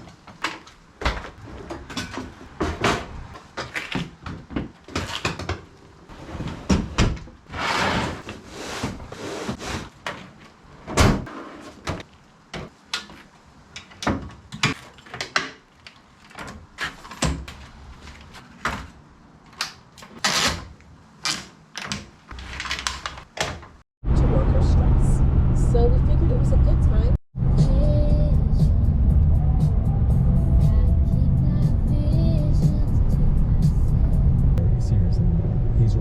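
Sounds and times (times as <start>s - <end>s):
objects knocking and thudding: 0.0s - 5.7s, 6.4s - 20.2s.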